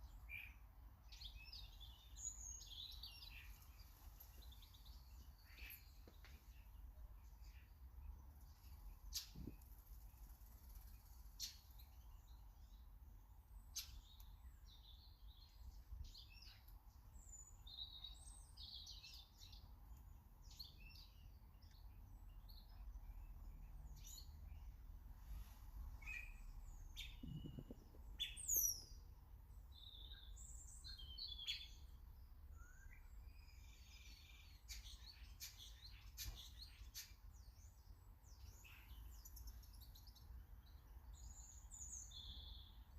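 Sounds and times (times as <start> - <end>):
small birds chirping: 0.0 - 42.9
faint low rumble: 21.6 - 30.8.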